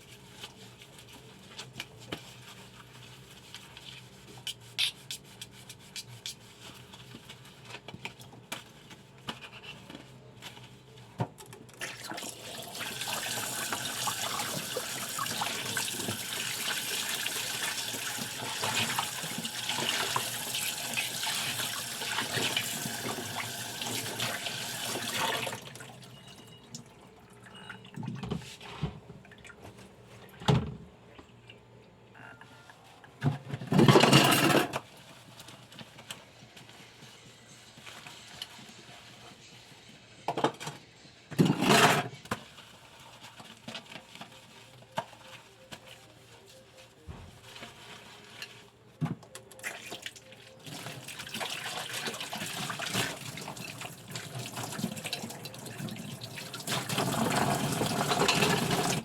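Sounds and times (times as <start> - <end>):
dishes and pans clinking: 58.0 - 59.0.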